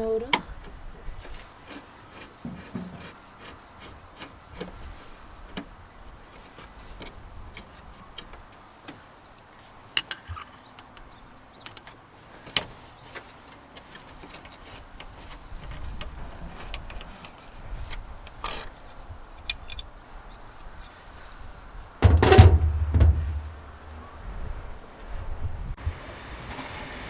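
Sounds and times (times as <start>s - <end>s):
hand tools clicking and knocking: 22.0s - 24.0s.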